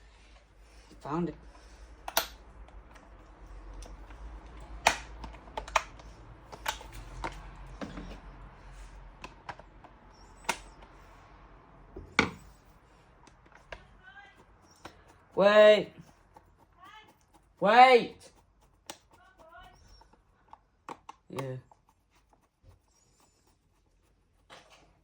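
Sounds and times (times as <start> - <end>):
fan parts clicking and knocking: 1.9 - 11.0, 11.9 - 21.6.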